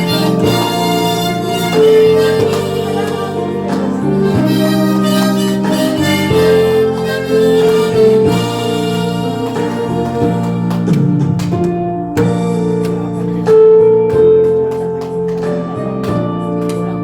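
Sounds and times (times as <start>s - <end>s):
harmonica ensemble slow melody: 0.0s - 11.2s.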